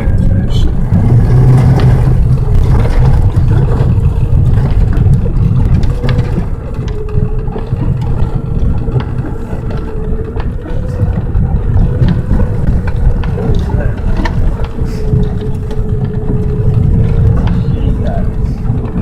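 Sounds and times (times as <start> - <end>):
car engine humming under load: 0.0 - 19.0
knocks and clicks: 0.0 - 19.0
low road rumble: 0.0 - 19.0.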